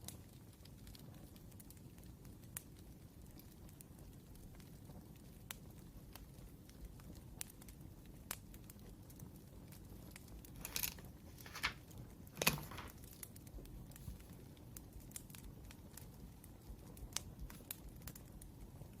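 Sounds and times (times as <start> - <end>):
wood fire crackling: 0.0 - 19.0
loud rustles: 10.6 - 11.8, 12.4 - 13.2.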